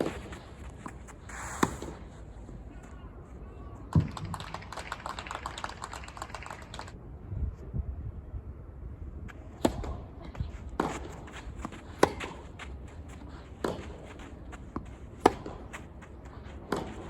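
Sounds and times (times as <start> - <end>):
tennis racket hitting ball: 10.8 - 17.0.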